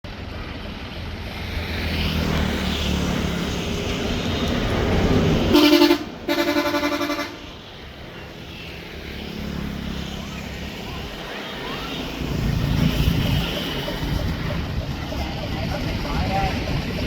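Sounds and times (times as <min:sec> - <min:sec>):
engine droning: 0:00.1 - 0:17.0
horn blasts: 0:05.5 - 0:07.6.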